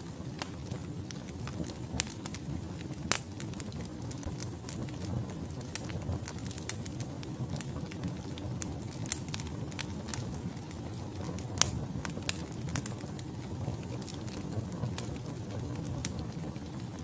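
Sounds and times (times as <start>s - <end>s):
logs crackling and popping: 0.0s - 17.0s
low rumble of flames: 0.0s - 17.0s.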